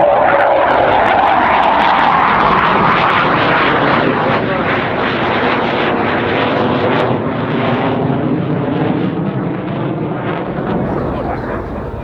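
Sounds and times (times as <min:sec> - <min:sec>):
loud rushing jet noise: 0:10.5 - 0:12.0.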